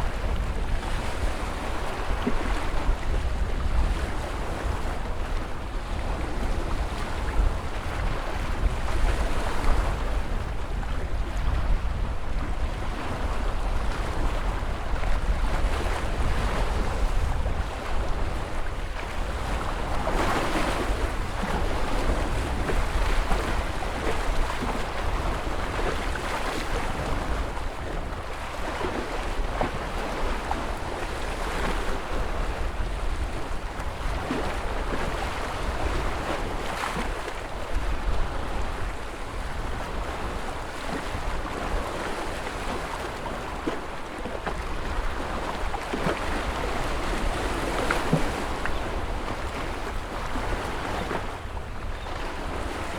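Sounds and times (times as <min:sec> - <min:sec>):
wind rumble on microphone: 0:00.0 - 0:52.9
ocean waves breaking: 0:15.7 - 0:52.9.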